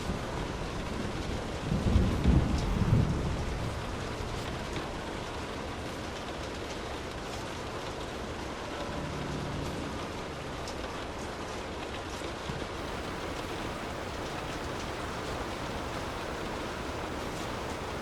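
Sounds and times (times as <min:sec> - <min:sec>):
steady rain falling: 0:00.0 - 0:08.8, 0:12.8 - 0:18.0
drops ticking: 0:12.8 - 0:18.0.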